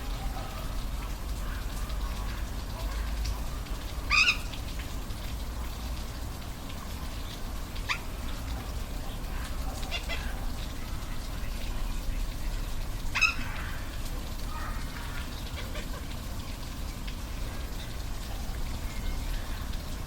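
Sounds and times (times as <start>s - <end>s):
animal calls: 4.1s - 4.5s, 7.8s - 8.2s, 9.2s - 10.9s.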